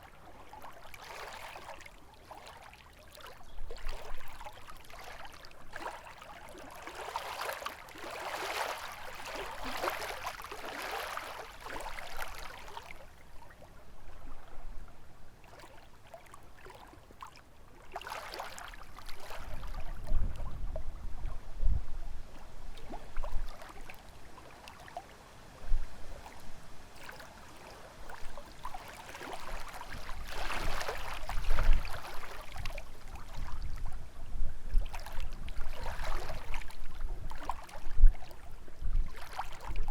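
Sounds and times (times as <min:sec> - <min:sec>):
waves lapping against shore: 0:00.0 - 0:39.9
wind rumbling on microphone: 0:18.9 - 0:24.0, 0:25.6 - 0:26.9, 0:29.4 - 0:39.9.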